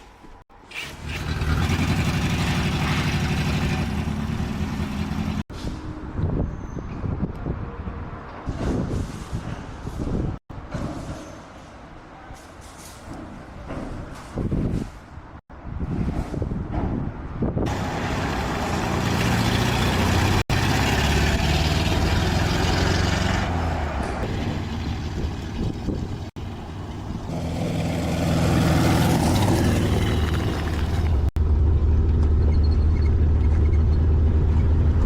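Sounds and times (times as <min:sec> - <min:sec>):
vehicle engine humming: 0:00.9 - 0:05.5, 0:17.7 - 0:35.0.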